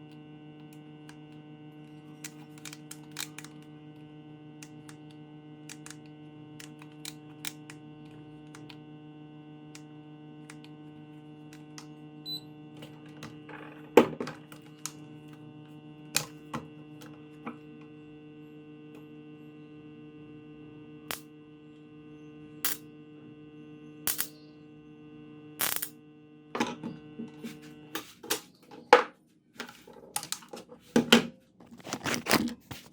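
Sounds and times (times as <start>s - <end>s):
spot welder electrical hum: 0.0s - 32.9s
sharp electrical clicks and snaps: 2.2s - 3.7s, 4.6s - 8.8s, 21.1s - 21.3s, 22.6s - 22.8s, 24.0s - 24.4s, 25.6s - 26.0s.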